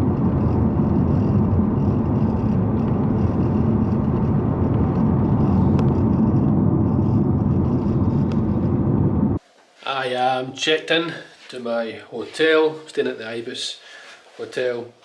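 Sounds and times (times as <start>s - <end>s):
car engine and tyre noise: 0.0s - 9.4s.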